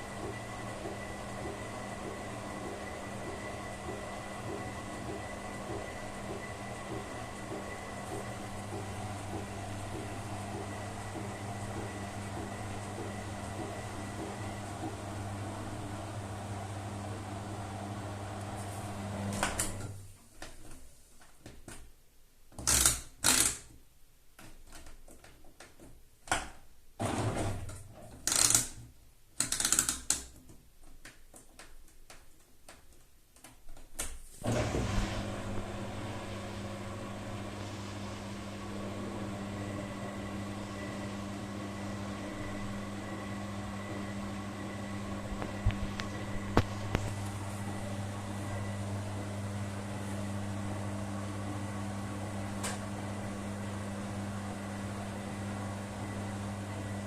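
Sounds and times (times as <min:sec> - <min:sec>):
washing machine motor hum: 0:00.0 - 0:20.1, 0:34.4 - 0:57.0.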